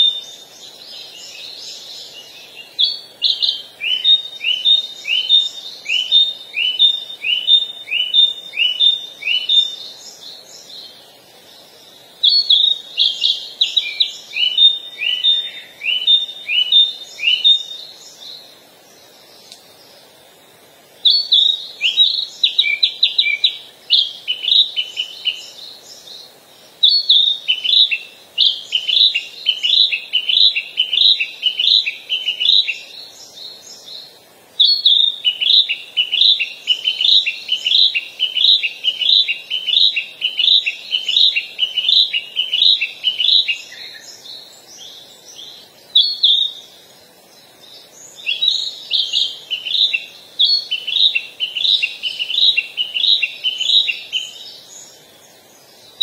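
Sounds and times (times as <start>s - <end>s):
bird chirping song: 0.0s - 56.0s.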